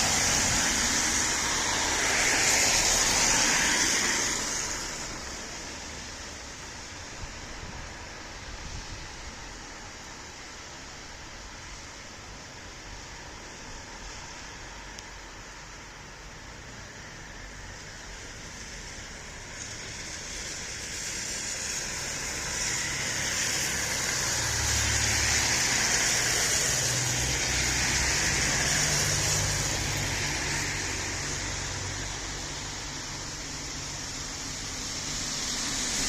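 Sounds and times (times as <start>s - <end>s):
passing vehicle engine hum: 0.0s - 6.2s, 19.6s - 36.0s
background traffic noise: 0.0s - 36.0s
tyre hiss: 0.0s - 36.0s.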